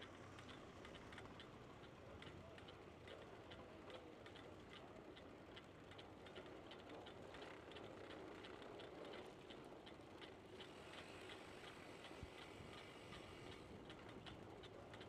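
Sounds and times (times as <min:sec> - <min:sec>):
bicycle freewheel ticking: 0:05.6 - 0:15.0.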